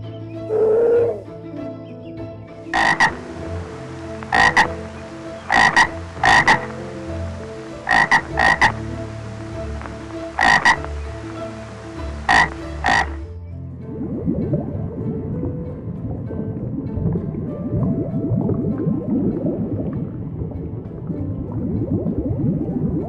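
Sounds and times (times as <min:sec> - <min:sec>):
steady low drone: 0:00.0 - 0:23.0
frog croaking: 0:02.7 - 0:13.3.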